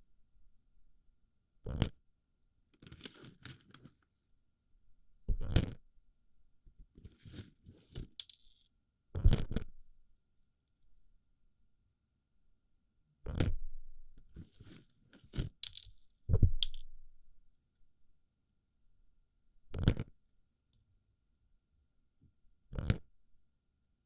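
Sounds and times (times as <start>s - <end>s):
plastic pellets rattling close up: 2.8s - 4.0s, 7.0s - 8.6s, 14.5s - 16.0s.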